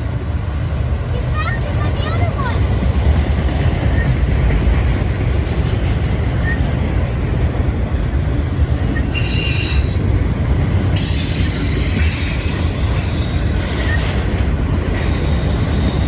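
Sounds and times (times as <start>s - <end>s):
freight train rumbling past: 0.0s - 16.0s
high-pitched wheel squeal: 9.0s - 10.0s, 11.0s - 14.2s.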